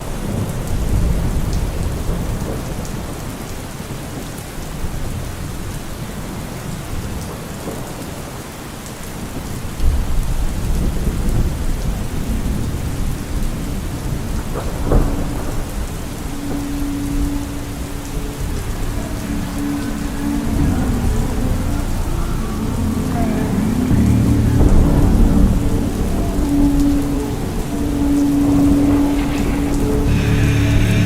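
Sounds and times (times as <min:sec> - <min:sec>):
heavy rain: 0:00.0 - 0:31.0
thunder rumbling: 0:09.4 - 0:31.0
low held note: 0:16.2 - 0:31.0.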